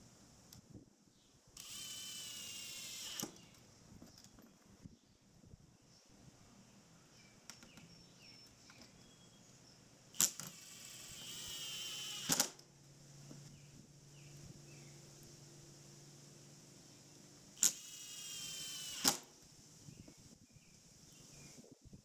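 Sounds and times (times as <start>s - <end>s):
power tool running: 1.6s - 3.5s, 10.1s - 12.6s, 17.6s - 19.3s
small tool clicks: 1.6s - 4.4s, 10.2s - 12.7s, 17.6s - 19.3s.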